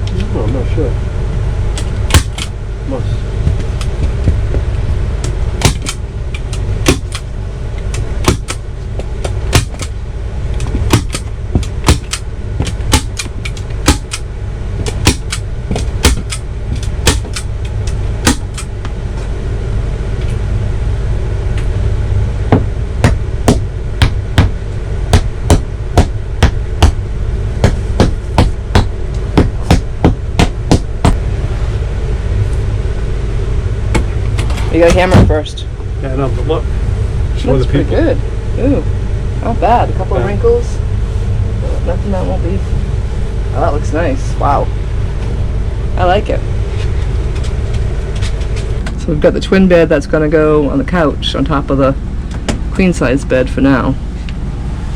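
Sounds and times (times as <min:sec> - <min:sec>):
steady low hum: 0:00.0 - 0:54.9
hammer tapping fasteners: 0:10.6 - 0:14.2.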